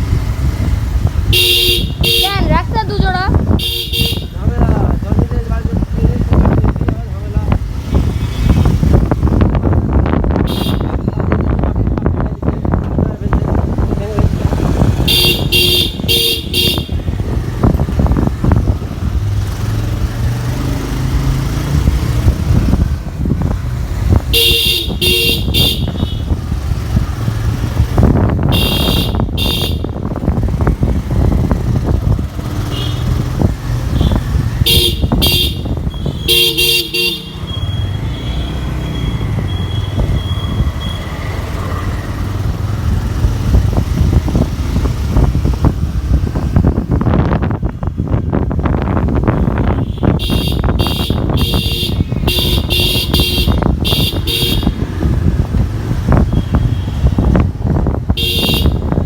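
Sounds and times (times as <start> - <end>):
vehicle engine and road noise: 0.0 - 59.0
quick repeated horn toots: 1.3 - 2.5, 15.0 - 17.1, 24.3 - 26.4, 28.5 - 30.0, 34.0 - 38.0, 49.5 - 54.9, 58.2 - 59.0.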